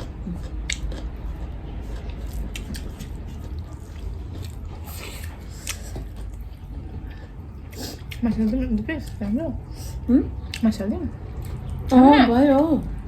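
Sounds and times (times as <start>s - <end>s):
wet chewing and mouth smacking: 0.0s - 12.7s
steady low hum: 0.0s - 13.0s.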